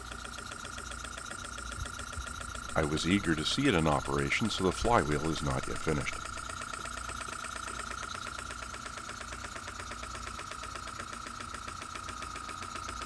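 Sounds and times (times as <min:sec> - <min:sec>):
steady high whine: 0:01.0 - 0:06.9.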